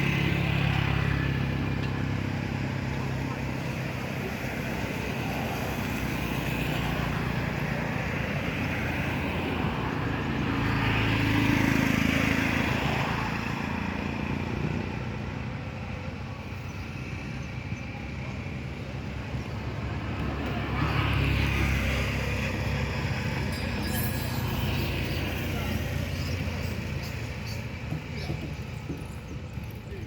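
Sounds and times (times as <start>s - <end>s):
vehicle engine passing by: 8.4s - 15.2s, 16.3s - 29.0s.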